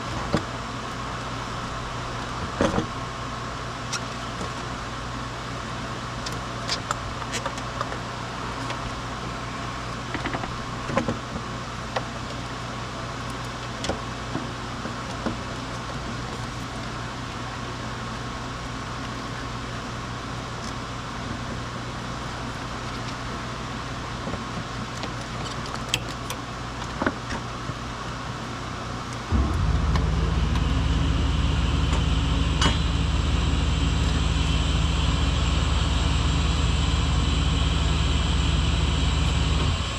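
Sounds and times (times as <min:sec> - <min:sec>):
steady low hum: 0:29.1 - 0:39.9
loud motor running: 0:29.3 - 0:39.9.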